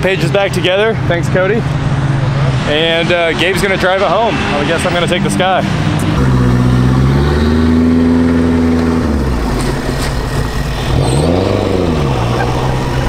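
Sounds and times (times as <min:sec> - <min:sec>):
car engine accelerating: 0:04.8 - 0:13.0.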